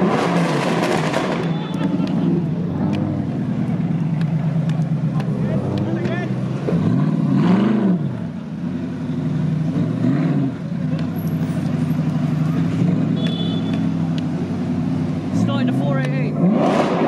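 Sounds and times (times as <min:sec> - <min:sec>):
engine revving: 0:00.0 - 0:04.0, 0:05.1 - 0:08.4, 0:09.4 - 0:13.3, 0:15.1 - 0:17.0
car engine idling: 0:00.0 - 0:16.3.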